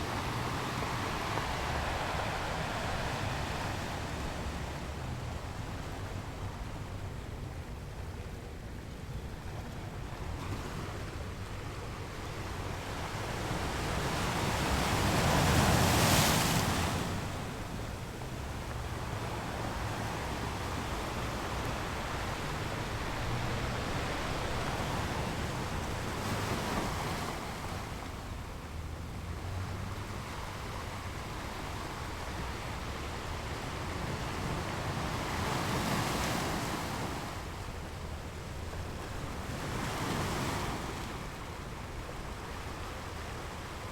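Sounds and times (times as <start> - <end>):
ocean waves breaking: 0.0 - 8.7, 10.3 - 43.9.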